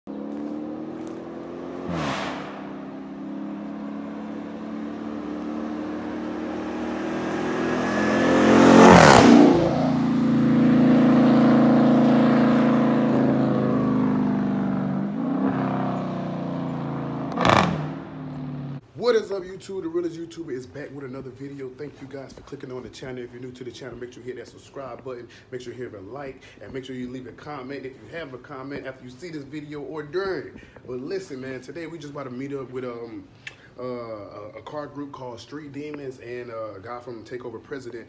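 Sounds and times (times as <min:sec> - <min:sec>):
car engine passing at high revs: 0:00.0 - 0:18.8
short sharp burst: 0:01.8 - 0:03.2.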